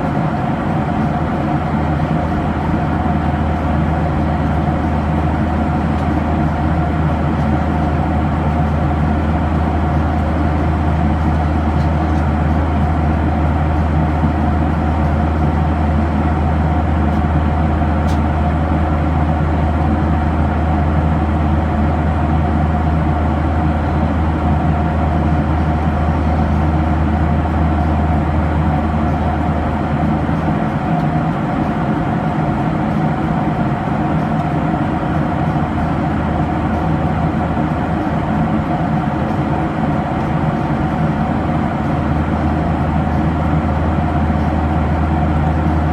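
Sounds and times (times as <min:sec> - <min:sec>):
airflow rush in aircraft cabin: 0:00.0 - 0:45.9
jet engines droning: 0:00.0 - 0:45.9.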